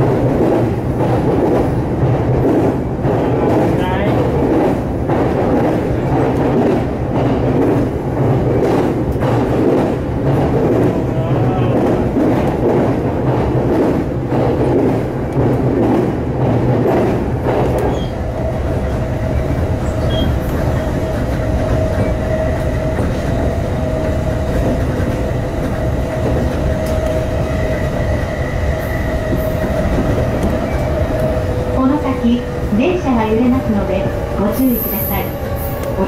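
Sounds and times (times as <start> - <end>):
constant train whine: 0.0 - 36.0
train wheels rumbling on rails: 0.0 - 36.0.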